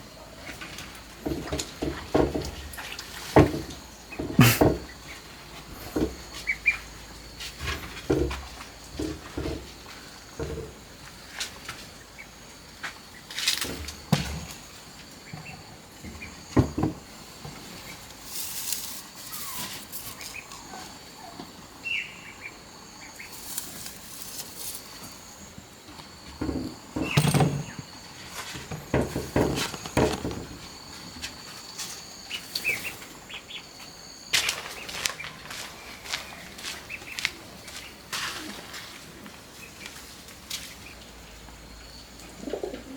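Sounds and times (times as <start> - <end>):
handwork knocks and rustles: 3.3 - 4.9, 26.0 - 30.8
small birds chirping: 3.4 - 8.0, 17.7 - 28.2, 28.9 - 42.9
high insect drone: 3.4 - 39.0.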